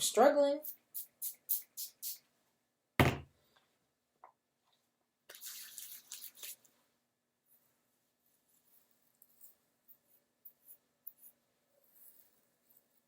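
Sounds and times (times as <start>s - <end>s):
spray bottle spraying: 0.6s - 2.2s
soft hissing and rubbing: 5.3s - 6.8s.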